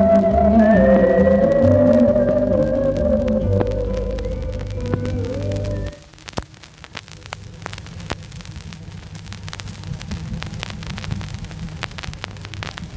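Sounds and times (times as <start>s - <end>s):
music note: 0.0s - 6.0s
low hum: 0.0s - 6.1s
record surface crackle and clicks: 0.0s - 12.9s.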